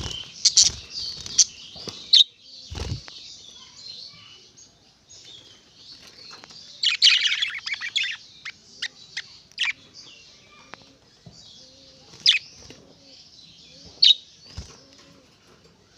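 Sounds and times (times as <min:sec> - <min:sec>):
tits chirping sharply: 0:00.0 - 0:04.5, 0:06.3 - 0:10.7
faint high twittering: 0:00.0 - 0:15.0.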